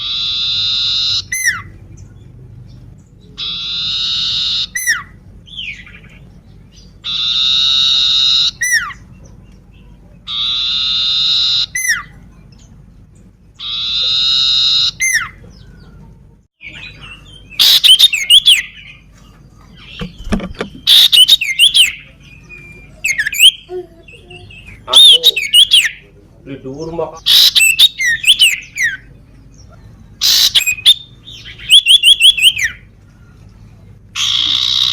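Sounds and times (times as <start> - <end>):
rapid bird chirps and whistles: 0.0 - 1.8, 3.3 - 9.1, 10.2 - 12.2, 13.6 - 15.4, 16.6 - 19.0, 19.8 - 23.6, 24.6 - 26.0, 27.2 - 32.9, 34.2 - 34.9.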